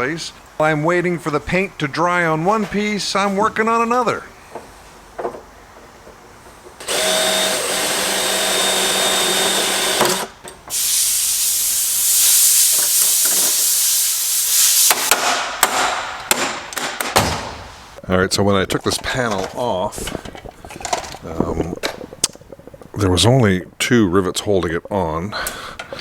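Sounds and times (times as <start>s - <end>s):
power drill whining: 6.8s - 10.3s.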